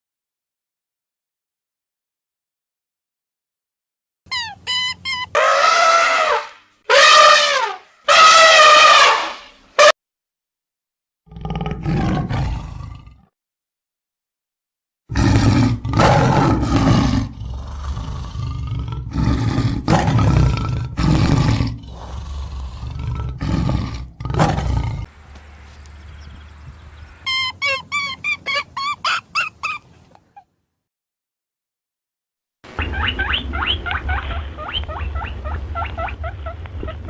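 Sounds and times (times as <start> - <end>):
big cat roaring: 11.3 - 13.3, 15.1 - 25.1.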